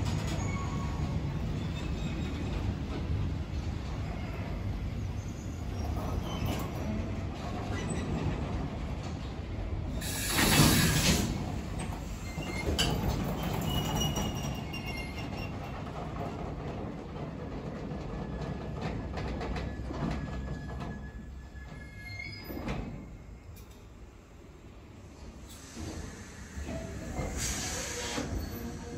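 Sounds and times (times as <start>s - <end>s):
train wheels rumbling on rails: 0.0s - 28.9s
brief high wheel squeals: 0.2s - 2.5s, 10.0s - 11.4s, 12.0s - 15.7s, 19.7s - 23.1s, 25.5s - 28.9s
loud hiss: 10.0s - 11.5s.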